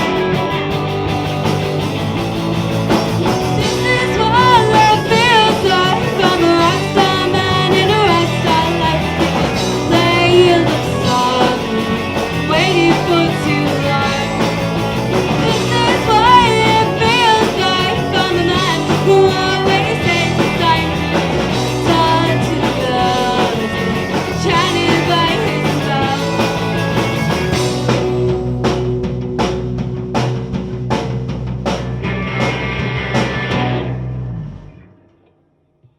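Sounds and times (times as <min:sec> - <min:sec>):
live rock band playing: 0:00.0 - 0:35.1
woman singing: 0:03.6 - 0:14.6, 0:15.3 - 0:26.7.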